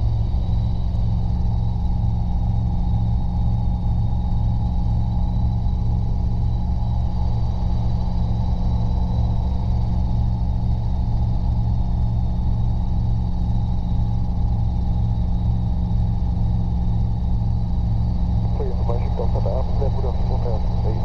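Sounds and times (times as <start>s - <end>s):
helicopter engine and rotors droning: 0.0s - 21.0s
high steady whine: 15.9s - 21.0s.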